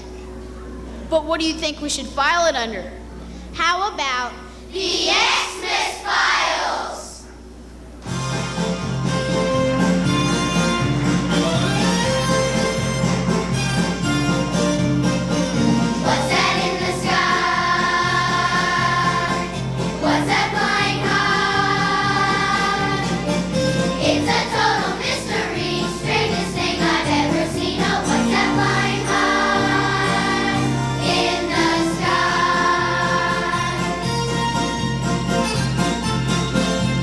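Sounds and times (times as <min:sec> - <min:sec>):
choir singing: 0:04.8 - 0:07.2, 0:15.8 - 0:34.4.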